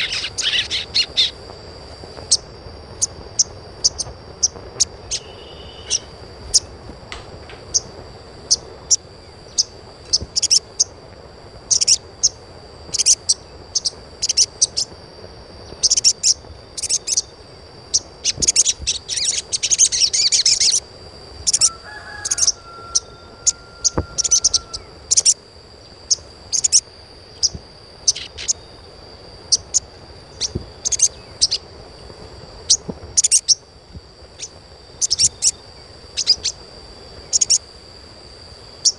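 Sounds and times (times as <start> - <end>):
bird chirping: 0.0 - 1.4, 3.0 - 6.7, 7.5 - 10.9, 11.7 - 14.9, 15.7 - 17.3, 17.9 - 20.8, 21.4 - 28.8, 29.5 - 31.7, 34.4 - 36.6, 37.2 - 37.6
low steady whistle: 0.0 - 11.0, 15.4 - 38.9.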